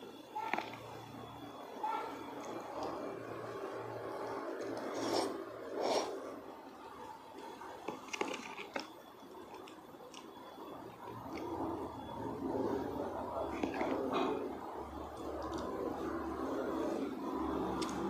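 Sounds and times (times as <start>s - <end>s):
metal spoon scraping plastic container: 4.6s - 6.2s.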